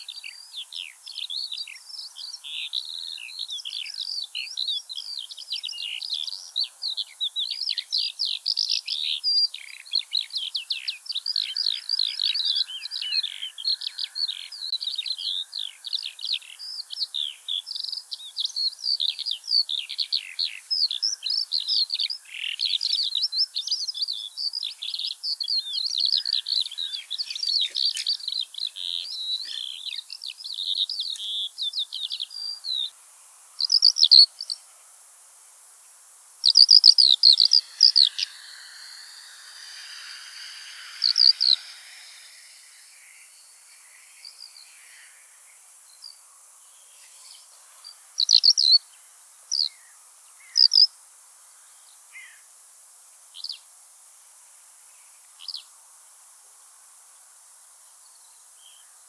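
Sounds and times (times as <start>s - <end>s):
skylark singing: 36.5s - 44.7s.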